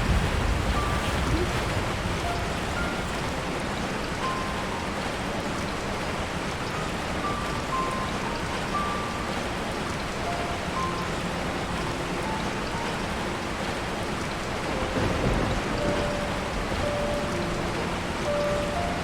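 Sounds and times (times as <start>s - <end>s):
low rumble of thunder: 0.0s - 3.5s, 14.7s - 17.0s
rain falling on a tarp: 0.0s - 19.0s.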